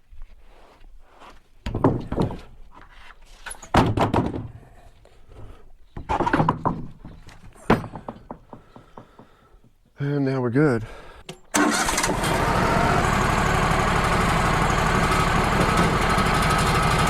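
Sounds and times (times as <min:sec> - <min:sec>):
heavy thunks and knocks: 0:01.7 - 0:02.5, 0:06.0 - 0:09.7.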